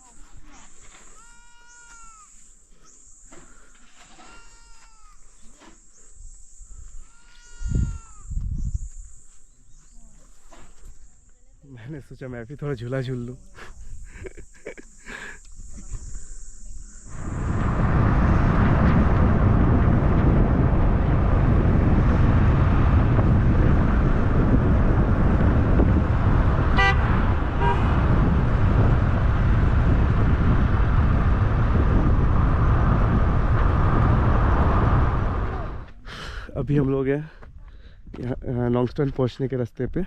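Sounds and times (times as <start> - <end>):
road and wind noise: 5.6 - 11.2, 15.4 - 40.0
vehicle rumble: 15.8 - 36.0
horn toot: 26.6 - 28.4.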